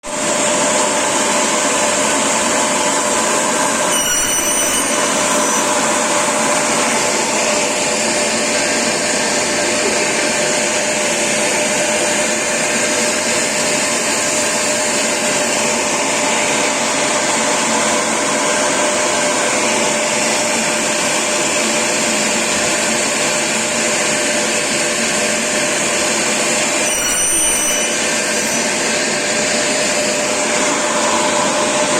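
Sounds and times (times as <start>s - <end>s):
industrial vacuum cleaner running: 0.0s - 31.9s.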